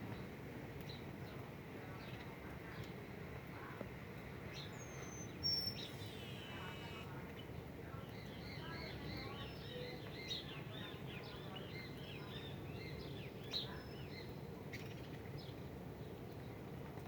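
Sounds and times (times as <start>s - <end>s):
small birds chirping: 4.5s - 15.5s.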